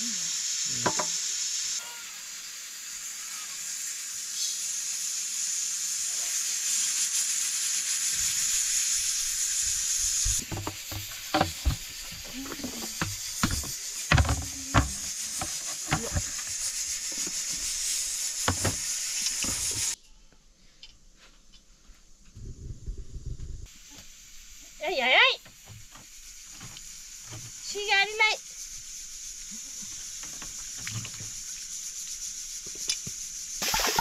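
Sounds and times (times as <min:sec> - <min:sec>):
curry sizzling in a pan: 0:00.0 - 0:20.0, 0:23.7 - 0:34.0
utensil knocking against pan: 0:00.9 - 0:01.1, 0:10.4 - 0:16.4, 0:18.5 - 0:18.8.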